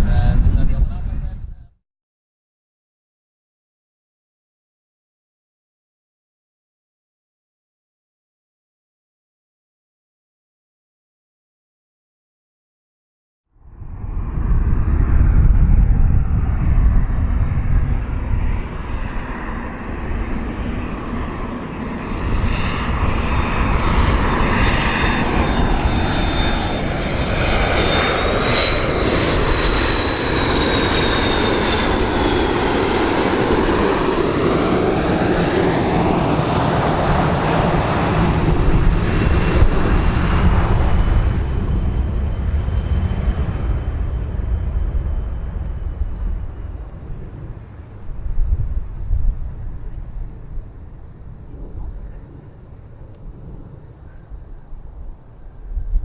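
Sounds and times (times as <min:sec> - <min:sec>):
airplane engines running: 0:00.0 - 0:01.7, 0:13.6 - 0:56.0.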